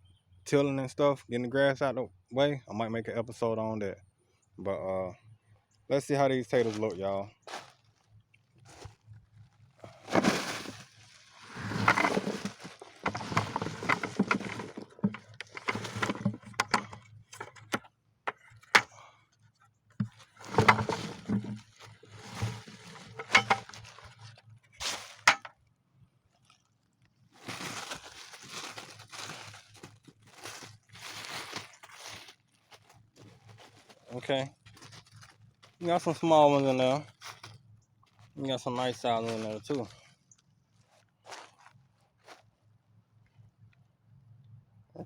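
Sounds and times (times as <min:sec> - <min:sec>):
potatoes rustling and knocking: 0:06.6 - 0:18.9, 0:20.0 - 0:25.5, 0:27.2 - 0:40.0.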